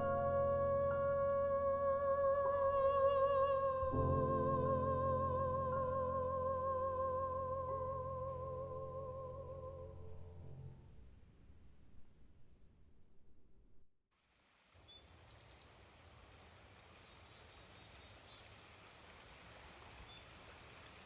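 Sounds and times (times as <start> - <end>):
soprano singing with vibrato: 0.0 - 10.3
piano chords: 0.0 - 11.1.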